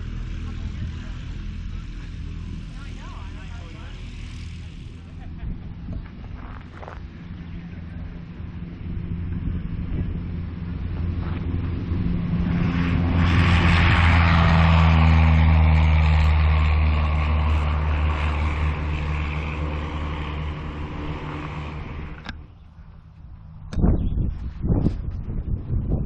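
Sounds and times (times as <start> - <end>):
aircraft engine running: 0.0 - 26.0.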